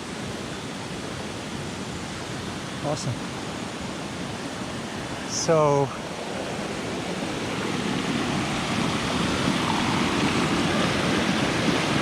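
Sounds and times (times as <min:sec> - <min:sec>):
waterfall rushing: 0:02.8 - 0:12.0.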